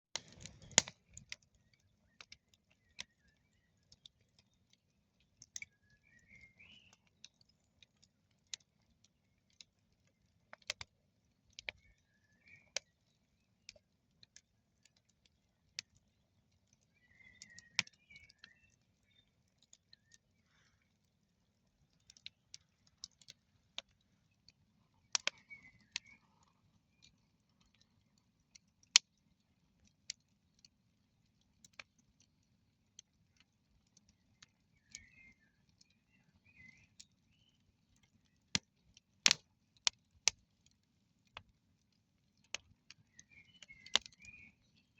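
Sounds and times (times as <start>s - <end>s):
campfire crackling: 0.1s - 44.9s.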